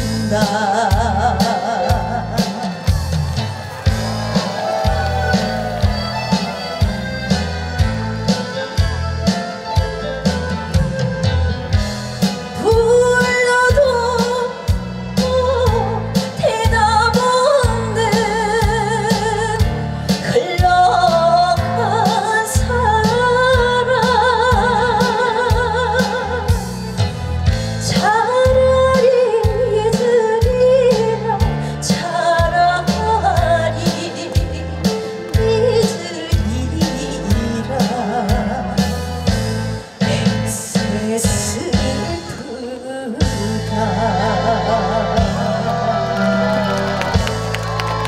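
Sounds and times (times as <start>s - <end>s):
woman singing with vibrato: 0.0s - 2.9s, 12.5s - 26.9s, 27.8s - 39.4s, 40.0s - 47.3s
instrumental backing with drum beat: 0.0s - 48.0s.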